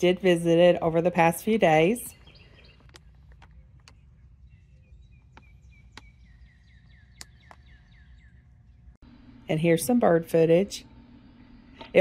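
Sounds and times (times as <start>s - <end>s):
low steady rumble: 0.0s - 12.0s
songbird calling: 1.8s - 9.0s
sharp clicks: 2.2s - 4.1s.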